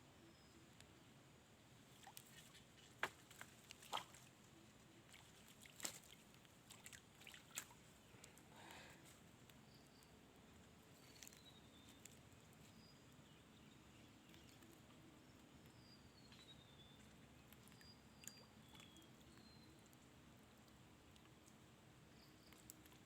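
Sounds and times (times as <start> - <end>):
faint bird whistles: 17.8 - 19.8
faint clicks: 22.4 - 23.0.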